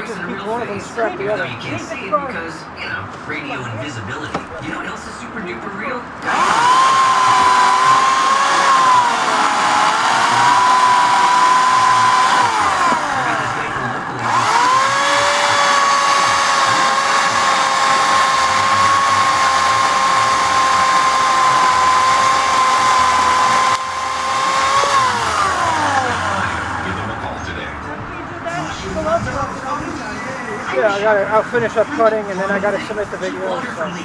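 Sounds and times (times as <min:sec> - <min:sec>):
electric chainsaw motor whine: 0:06.2 - 0:27.2.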